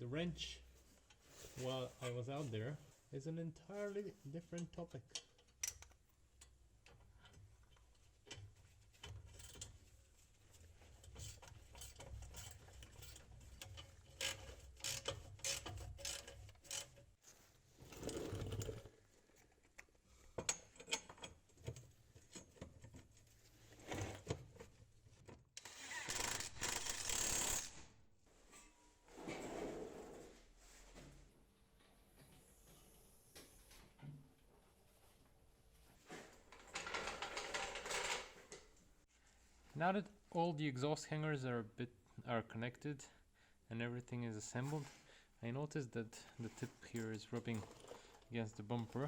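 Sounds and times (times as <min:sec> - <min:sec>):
tools and metal parts clicking: 0:04.6 - 0:17.1, 0:25.6 - 0:27.7, 0:46.6 - 0:49.0.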